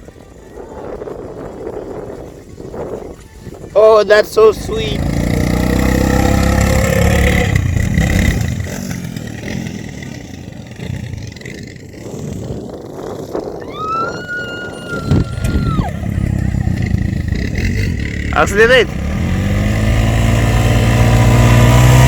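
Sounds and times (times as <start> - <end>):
quad bike engines running: 0.0 - 22.0
long high tone: 13.6 - 16.9.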